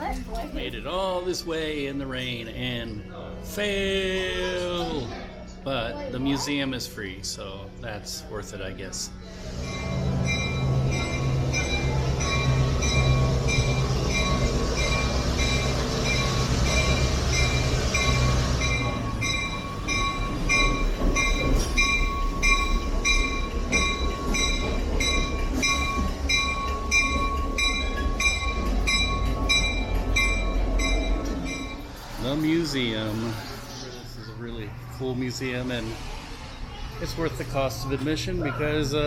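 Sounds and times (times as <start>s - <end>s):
locomotive rumble: 9.1s - 38.6s.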